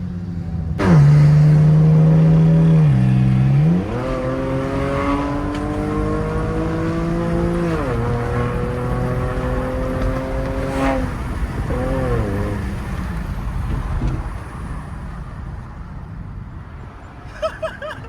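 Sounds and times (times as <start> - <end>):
car engine droning: 0.0 - 15.9
road and tyre noise: 0.0 - 18.0.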